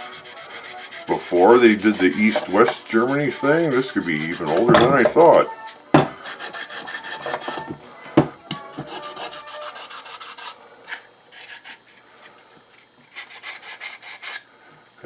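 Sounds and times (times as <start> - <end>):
rubbing strokes on wood: 0.0 - 4.7, 6.2 - 7.6, 8.8 - 10.6.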